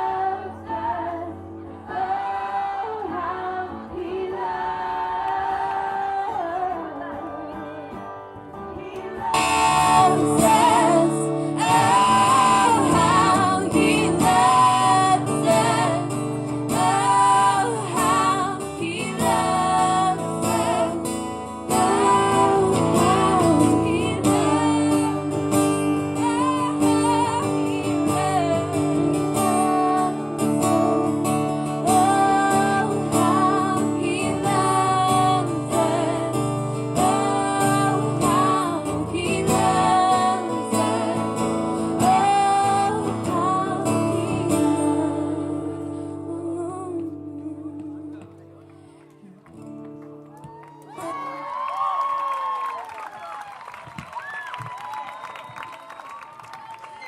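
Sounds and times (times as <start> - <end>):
guitar accompaniment: 0.0 - 51.7
person singing worship song: 9.0 - 25.5, 31.8 - 48.2.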